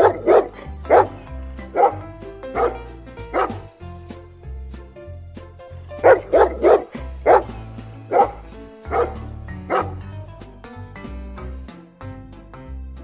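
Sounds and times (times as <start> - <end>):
dog barking: 0.0 - 2.0, 2.6 - 3.7, 6.0 - 10.0
light background music: 0.0 - 13.0.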